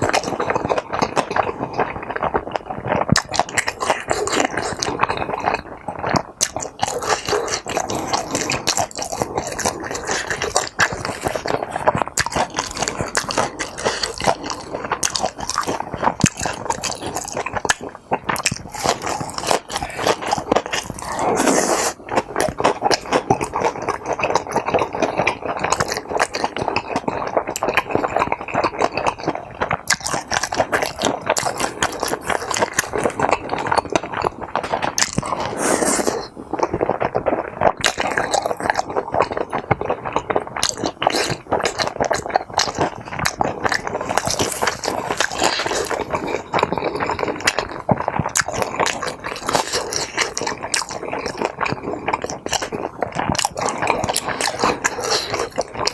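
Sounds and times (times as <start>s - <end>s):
close chewing and biting: 0.0s - 55.9s
rapid mouth clicks: 0.0s - 55.9s.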